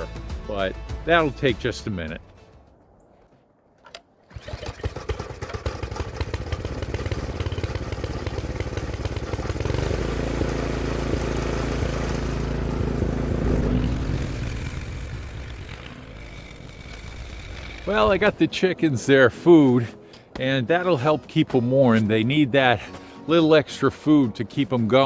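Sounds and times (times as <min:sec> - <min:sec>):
engine starting and running: 0:03.9 - 0:18.4.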